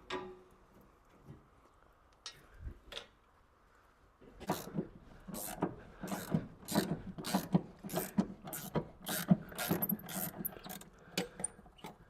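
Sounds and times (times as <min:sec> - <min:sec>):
ratchet spanner clicking: 0:05.4 - 0:10.9.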